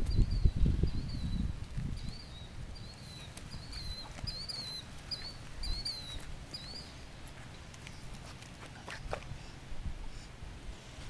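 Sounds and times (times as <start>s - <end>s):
bird chirping: 0.0s - 8.1s.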